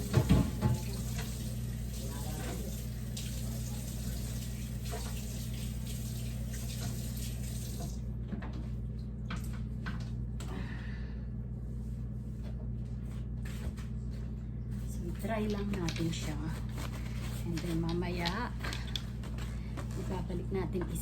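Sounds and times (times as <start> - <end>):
faucet running water into sink: 0.0 - 8.0
steady low hum: 7.9 - 21.0.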